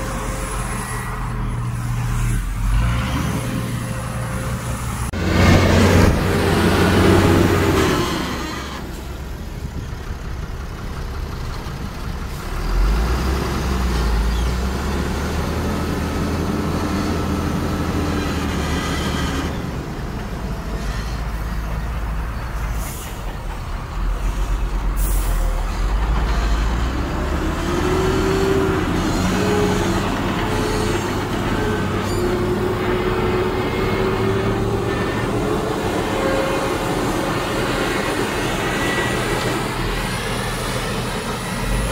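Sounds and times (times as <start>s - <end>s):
heavy diesel machinery engine: 0.0s - 41.9s.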